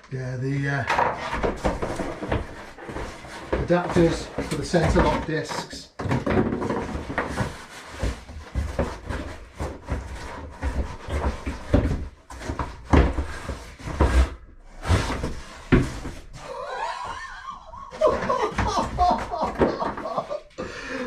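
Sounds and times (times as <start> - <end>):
cardboard packaging knocks and rustles: 6.0 - 16.3.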